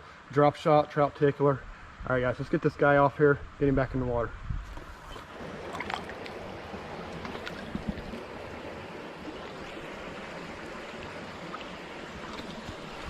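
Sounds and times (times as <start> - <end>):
creek water rushing: 4.9 - 13.0.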